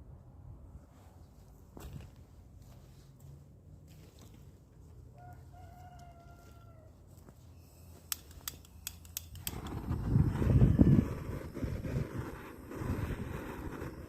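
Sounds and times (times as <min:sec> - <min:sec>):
faint rooster crowing: 0:05.1 - 0:07.4
sharp clicks: 0:08.1 - 0:09.8.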